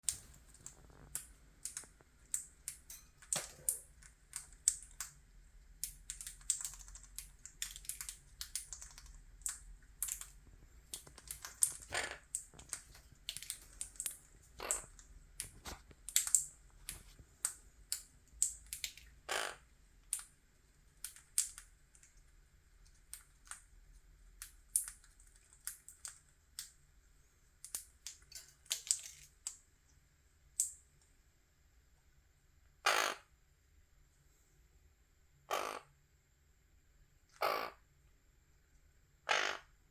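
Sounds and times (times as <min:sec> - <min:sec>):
parrot beak clicks and taps: 0:05.8 - 0:19.1.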